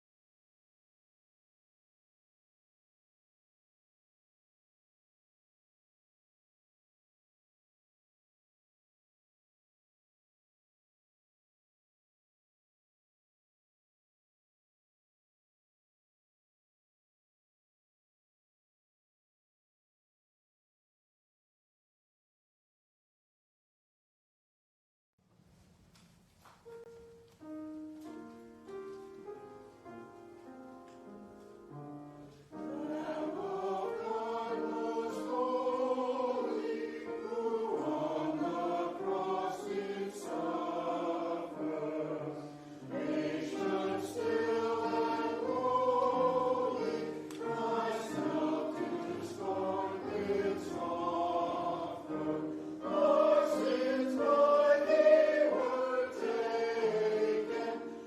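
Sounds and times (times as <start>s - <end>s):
choir singing: 32.3s - 58.0s.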